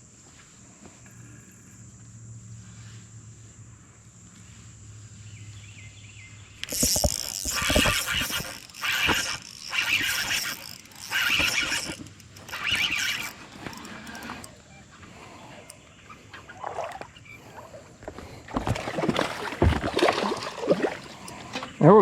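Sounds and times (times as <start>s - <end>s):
fishing reel whirring and clicking: 6.6s - 15.9s.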